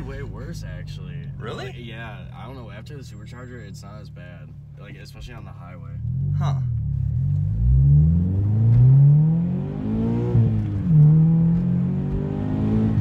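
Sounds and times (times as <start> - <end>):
car engine accelerating hard: 5.1 - 13.0.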